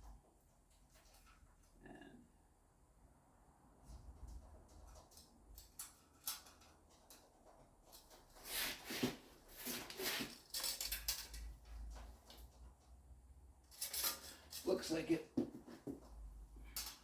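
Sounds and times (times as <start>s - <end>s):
steel parts knocking and scraping: 9.6s - 12.4s, 13.7s - 14.8s.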